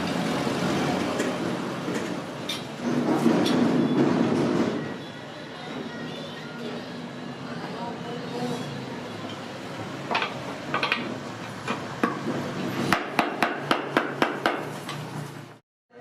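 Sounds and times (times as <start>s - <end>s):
hammer striking wood: 12.9s - 14.7s.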